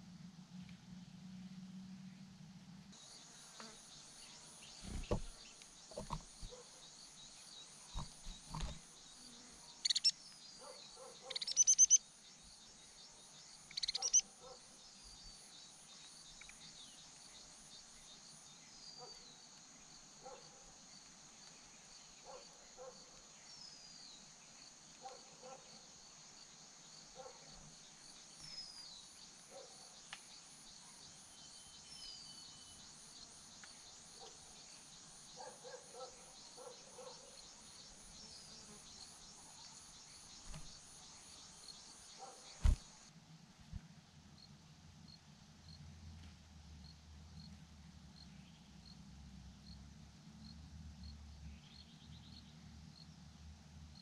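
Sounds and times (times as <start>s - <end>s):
small birds chirping: 3.0s - 25.7s, 26.9s - 43.1s
high insect drone: 3.0s - 43.1s.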